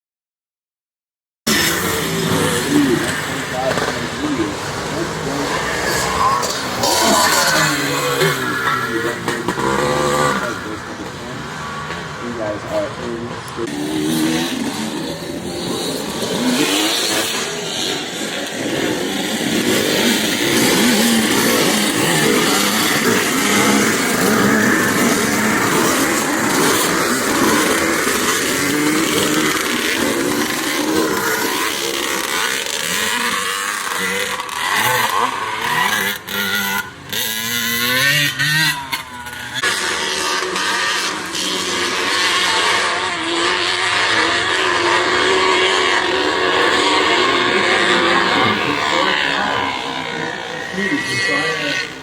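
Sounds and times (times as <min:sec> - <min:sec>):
dirt bike engines revving: 0:01.5 - 0:52.0.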